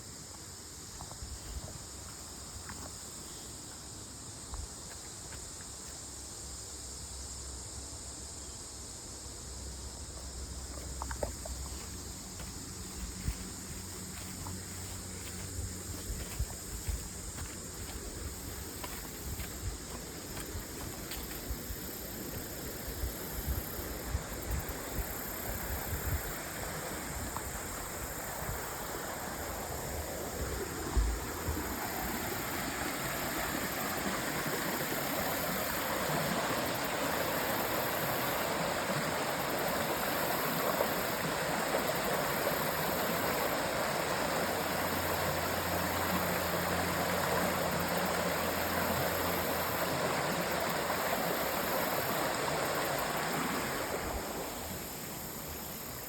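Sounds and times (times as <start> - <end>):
creek water rushing: 10.0 - 56.0.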